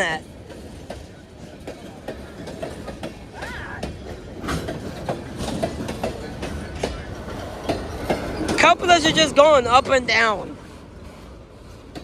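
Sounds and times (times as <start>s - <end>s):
train wheels rumbling on rail: 0.0s - 12.0s
clicks and clanks over rail joints: 0.3s - 10.2s, 11.1s - 12.0s.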